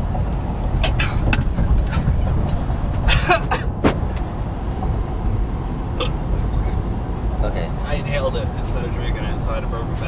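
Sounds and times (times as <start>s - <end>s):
truck road and engine noise: 0.0s - 10.0s.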